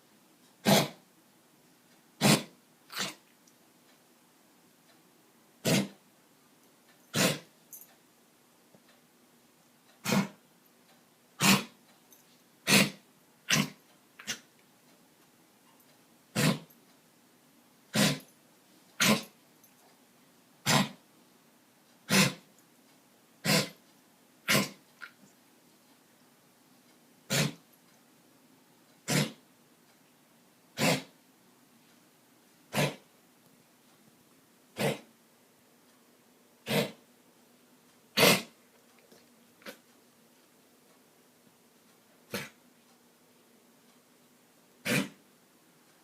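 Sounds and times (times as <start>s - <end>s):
dog coughing: 0.6s - 1.0s, 2.2s - 3.2s, 5.6s - 6.0s, 7.1s - 7.5s, 10.0s - 10.4s, 11.4s - 11.8s, 12.6s - 14.5s, 16.3s - 16.7s, 17.9s - 18.3s, 19.0s - 19.3s, 20.6s - 21.0s, 22.1s - 22.4s, 23.4s - 23.8s, 24.4s - 24.8s, 27.3s - 27.6s, 29.1s - 29.4s, 30.8s - 31.1s, 32.7s - 33.0s, 34.8s - 35.1s, 36.6s - 37.0s, 38.2s - 38.6s, 42.3s - 42.6s, 44.8s - 45.2s.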